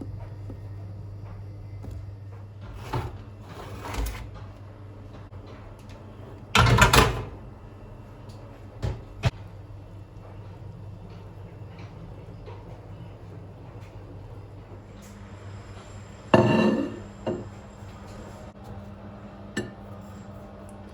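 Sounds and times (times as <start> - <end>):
steady low hum: 0.0 - 20.9
loud kitchen clatter: 6.5 - 7.5.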